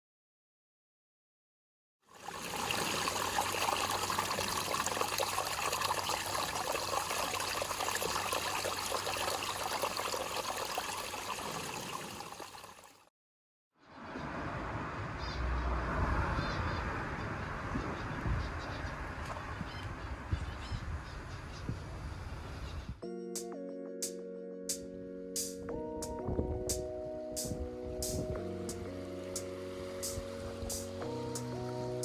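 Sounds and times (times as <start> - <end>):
water trickling and splashing: 2.1 - 13.0, 28.7 - 32.0.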